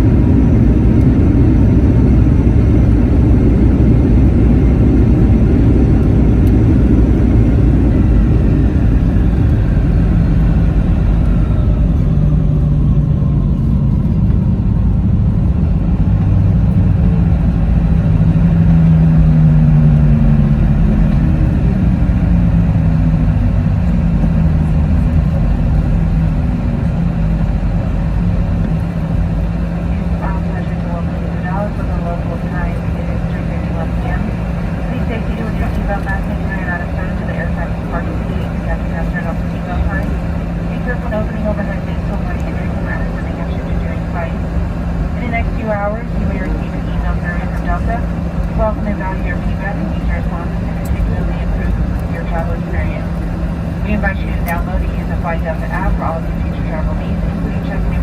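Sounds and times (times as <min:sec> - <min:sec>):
aircraft cabin rumble: 0:00.0 - 0:58.0
jet engine whine: 0:00.0 - 0:58.0.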